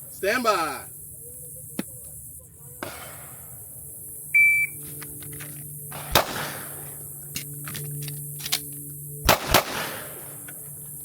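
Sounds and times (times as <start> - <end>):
shot timer beep: 4.4 - 4.8
pistol shots: 5.9 - 7.5, 8.4 - 10.6.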